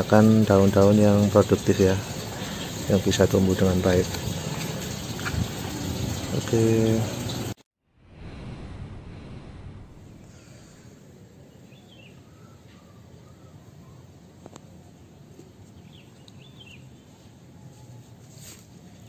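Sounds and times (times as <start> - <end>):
faint bird chirps: 11.5 - 14.1.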